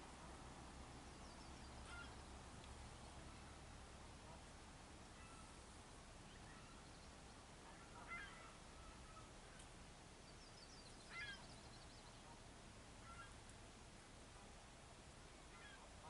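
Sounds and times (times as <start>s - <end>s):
faint bird calls: 1.1s - 4.5s, 5.1s - 13.5s, 15.4s - 16.0s.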